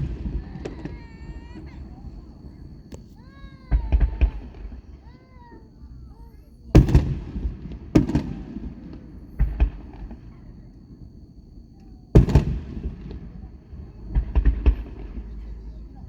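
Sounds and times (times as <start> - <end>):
fireworks shells bursting: 0.0 - 4.9.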